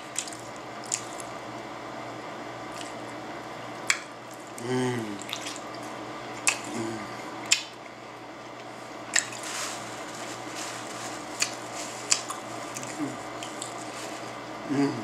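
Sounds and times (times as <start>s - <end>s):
person chewing food: 0.0s - 1.4s, 2.7s - 3.0s, 3.8s - 15.0s
wet mouth clicks and smacks: 0.1s - 1.3s, 2.7s - 3.0s, 3.8s - 6.8s, 7.4s - 7.9s, 9.1s - 9.4s, 11.4s - 13.8s.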